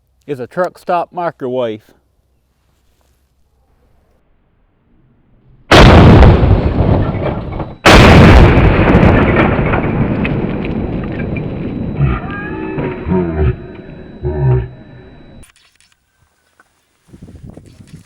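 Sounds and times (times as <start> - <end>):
shotgun blasts: 5.7 - 7.2, 7.8 - 10.1.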